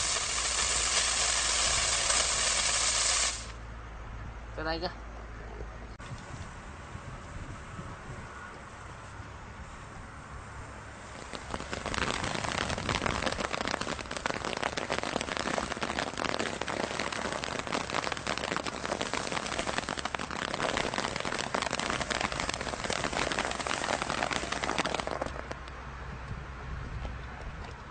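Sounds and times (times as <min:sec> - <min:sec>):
firework crackling: 0:00.0 - 0:03.6, 0:10.9 - 0:25.6.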